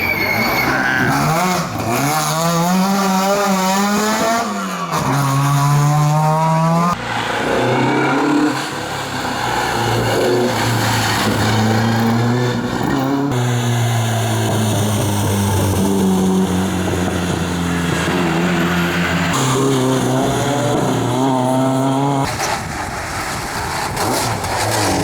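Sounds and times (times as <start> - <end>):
rally car engine revving hard: 0.4 - 25.0.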